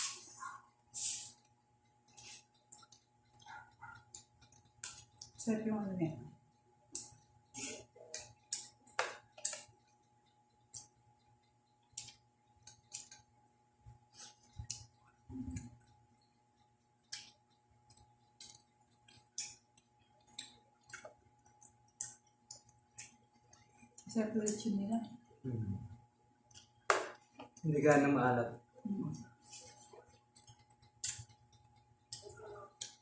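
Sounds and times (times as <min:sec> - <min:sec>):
dull eating sounds: 0:00.0 - 0:05.5, 0:06.3 - 0:27.7, 0:28.8 - 0:33.0
chewing and lip smacking: 0:01.3 - 0:05.4, 0:14.2 - 0:16.0, 0:16.6 - 0:24.1, 0:29.2 - 0:33.0.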